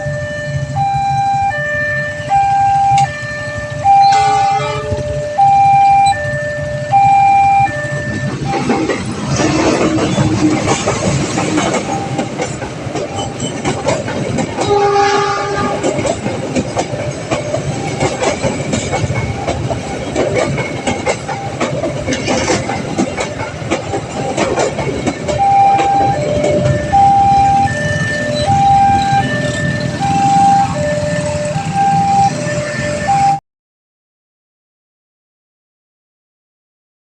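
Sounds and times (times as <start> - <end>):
two-tone crossing alarm chime: 0.0 - 8.7, 17.0 - 18.3, 25.2 - 33.4
locomotive horn blast: 1.9 - 6.0, 14.6 - 16.0
train wheels clicking on rail joints: 7.7 - 33.2.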